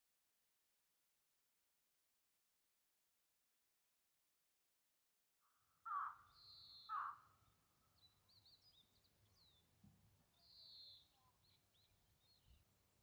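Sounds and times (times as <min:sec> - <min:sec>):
faint wild birds calling: 0:05.4 - 0:13.0.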